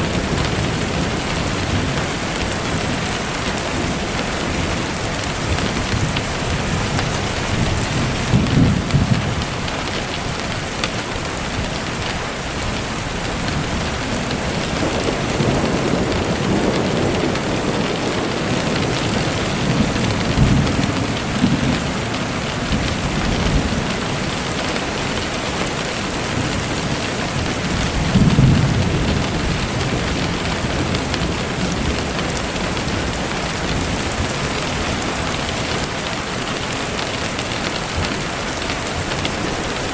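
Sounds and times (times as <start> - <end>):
distant thunder rumbling: 0.0 - 10.4, 11.3 - 35.9
steady rain falling: 0.0 - 39.9.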